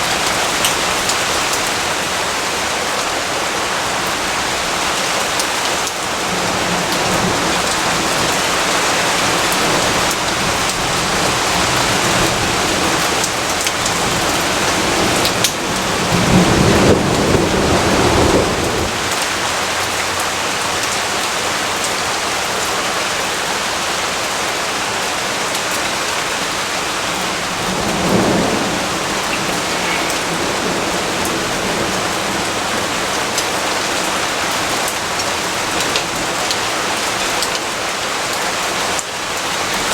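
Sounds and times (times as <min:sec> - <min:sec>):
heavy rainfall: 0:00.0 - 0:39.9
thunder rumbling: 0:06.2 - 0:20.0, 0:26.6 - 0:35.0.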